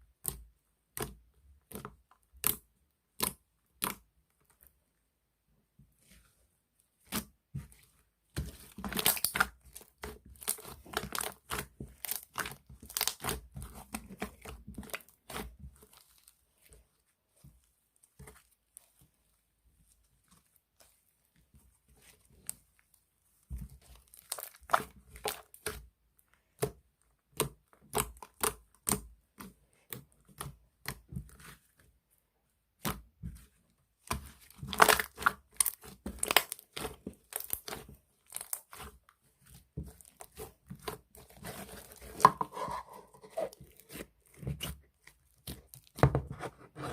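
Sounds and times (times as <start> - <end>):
slime crackling and popping: 8.8 - 16.3, 23.8 - 25.8, 34.1 - 38.9.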